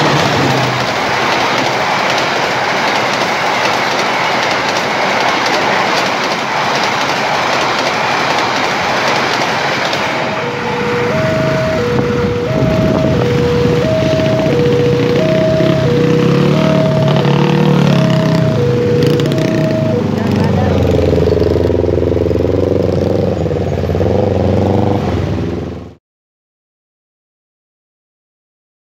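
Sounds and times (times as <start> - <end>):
rail clicks: 0.0 - 23.4
train wheels rushing on rail: 0.0 - 25.9
motor vehicle engines humming: 0.0 - 26.0
two-note electronic tone: 10.3 - 21.1.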